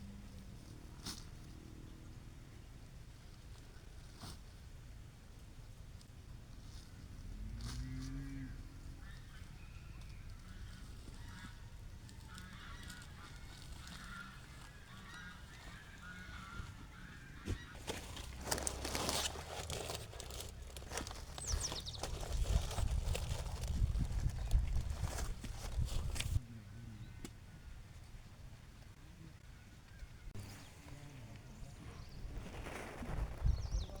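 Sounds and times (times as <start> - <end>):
rustling: 5.4 - 26.4, 30.4 - 34.0
farm fowl calling: 8.5 - 19.1.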